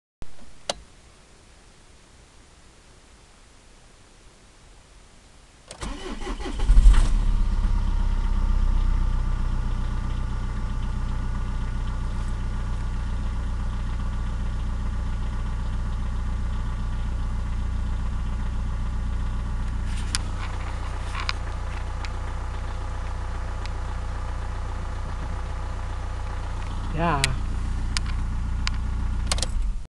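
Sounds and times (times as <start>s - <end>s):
starter motor cranking: 5.8s - 7.2s
diesel engine idling: 5.8s - 29.8s.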